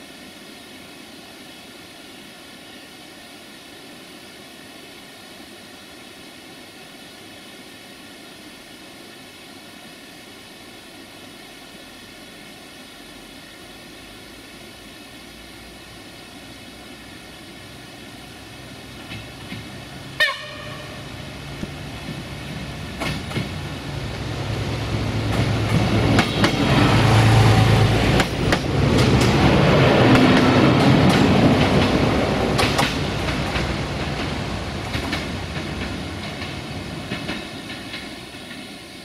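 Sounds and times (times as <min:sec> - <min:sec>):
diesel train engine drone: 0:13.2 - 0:39.0
train rumble: 0:14.9 - 0:39.0
train horn toots: 0:20.2 - 0:21.2.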